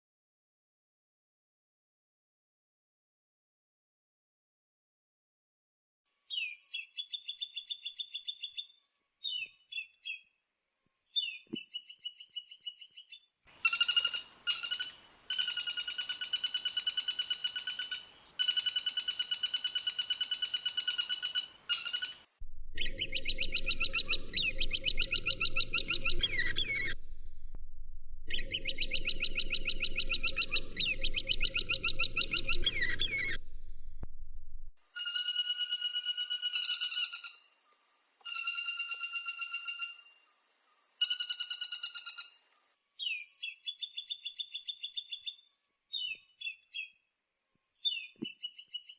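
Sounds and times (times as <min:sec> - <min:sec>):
woodpecker rattling trills: 0:13.6 - 0:27.4, 0:28.3 - 0:34.0, 0:35.0 - 0:37.5
low steady hum: 0:22.4 - 0:34.8.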